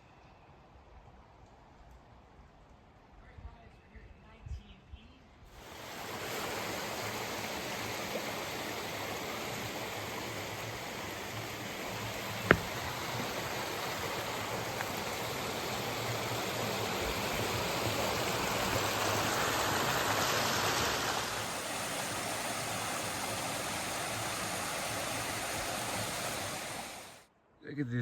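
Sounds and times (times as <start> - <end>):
stream water flowing: 5.6 - 27.3.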